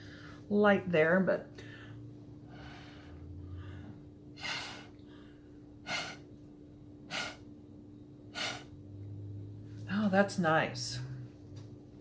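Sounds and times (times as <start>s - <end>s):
breath puffs through a straw: 7.1s - 7.4s, 8.3s - 8.7s.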